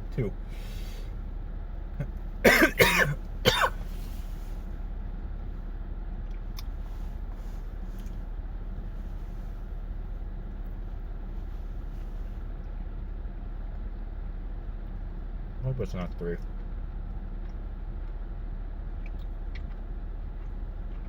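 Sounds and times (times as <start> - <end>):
steady low hum: 0.0 - 21.0
person coughing harshly: 2.0 - 3.8.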